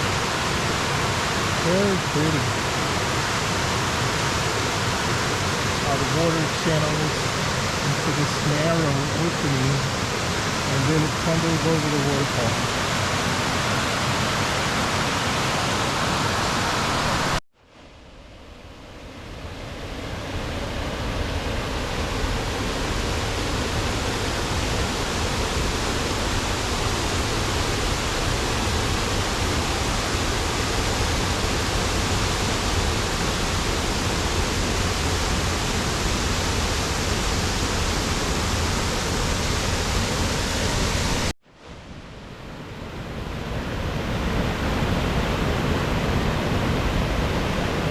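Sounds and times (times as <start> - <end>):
waterfall rushing: 0.0 - 17.4, 21.0 - 41.3.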